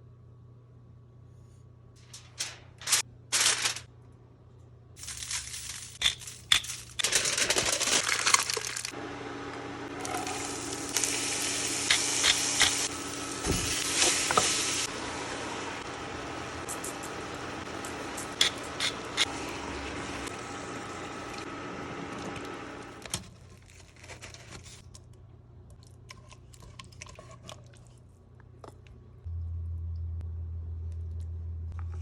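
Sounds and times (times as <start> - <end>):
scraping and rustling: 2.0 - 3.9.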